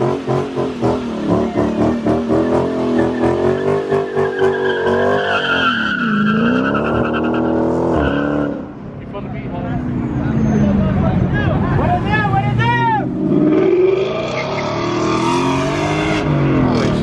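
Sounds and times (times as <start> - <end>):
car engine revving hard: 13.1 - 17.0.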